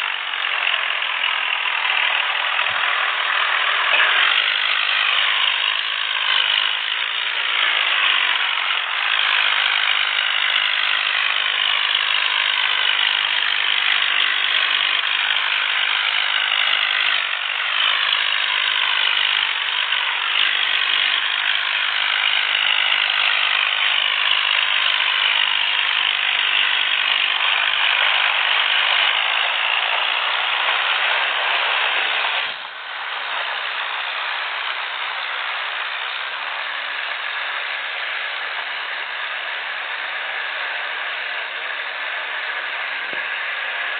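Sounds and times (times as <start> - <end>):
diesel tractor engines rattling: 0.0 - 43.9.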